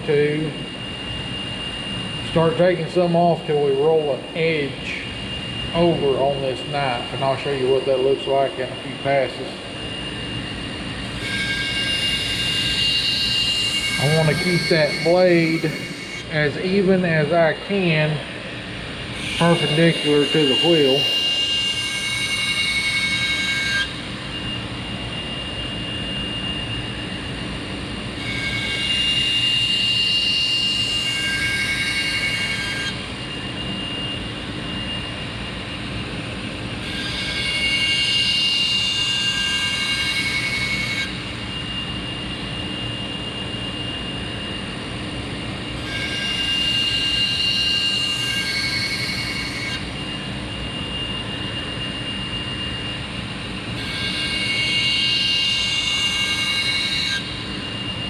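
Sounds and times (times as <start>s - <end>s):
belt grinder running: 10.9s - 24.2s
knife blade grinding hiss: 11.2s - 16.4s.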